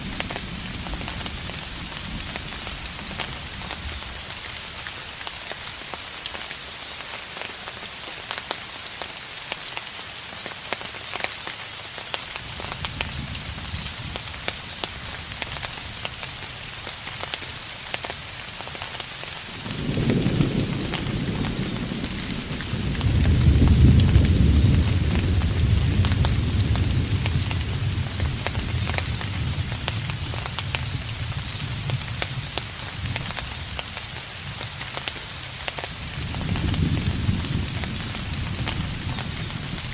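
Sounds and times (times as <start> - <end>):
rain pattering: 0.0 - 39.9
distant thunder rumbling: 19.5 - 33.8, 36.0 - 39.9.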